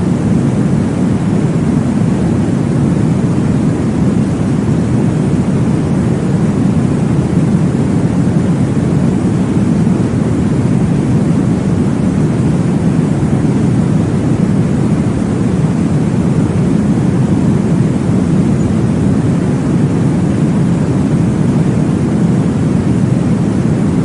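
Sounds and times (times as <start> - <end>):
deep white noise rushing: 0.0 - 24.0.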